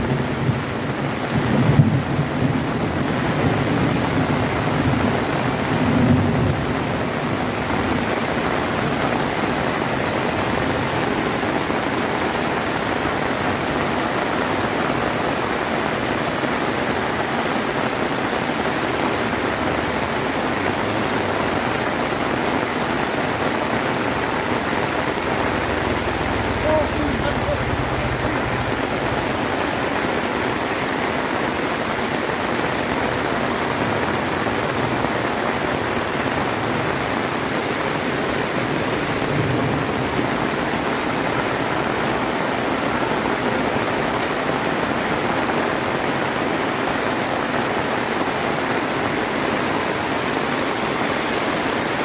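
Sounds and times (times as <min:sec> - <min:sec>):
heavy rain pouring: 0:00.0 - 0:52.0
thunder rumbling: 0:23.9 - 0:35.4, 0:38.2 - 0:41.3.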